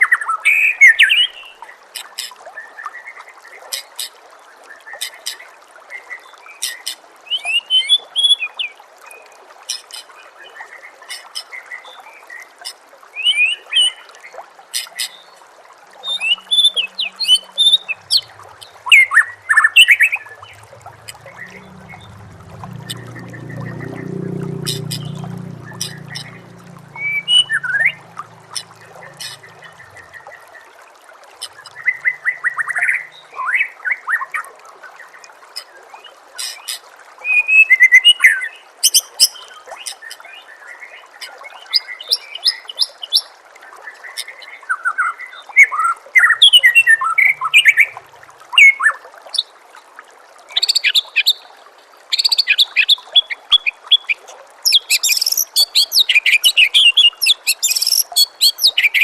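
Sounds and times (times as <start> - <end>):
trickle of running water: 0.0 - 59.0
songbird singing: 16.1 - 30.5, 52.5 - 59.0.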